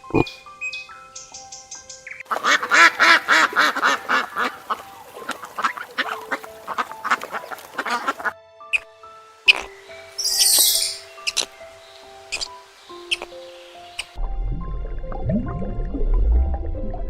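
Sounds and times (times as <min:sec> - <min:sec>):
duck quacking: 0:02.3 - 0:08.4.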